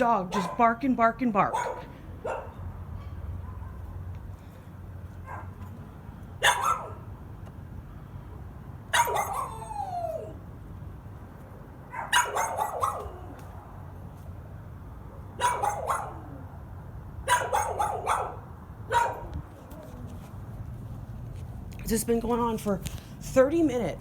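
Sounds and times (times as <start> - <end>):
dog barking: 1.5 - 2.6, 3.4 - 4.0, 5.2 - 5.6, 6.4 - 7.0, 8.9 - 9.6, 11.9 - 13.4, 15.4 - 16.4, 17.2 - 19.3.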